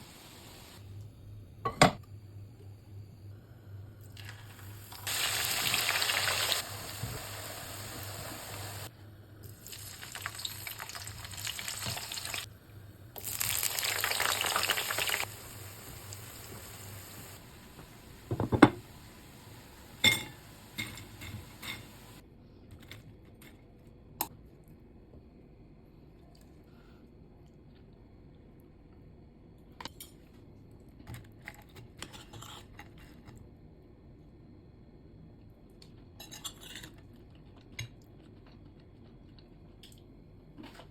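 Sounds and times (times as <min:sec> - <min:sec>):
vegetables sizzling in hot oil: 0:00.0 - 0:00.8, 0:04.2 - 0:08.9, 0:09.5 - 0:12.5, 0:13.2 - 0:22.2.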